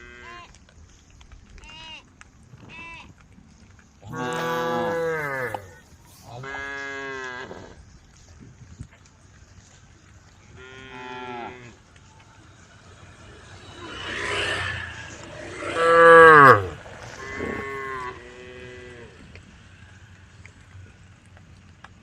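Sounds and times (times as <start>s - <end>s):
cows mooing: 4.0s - 7.8s, 10.6s - 11.9s, 12.9s - 19.4s.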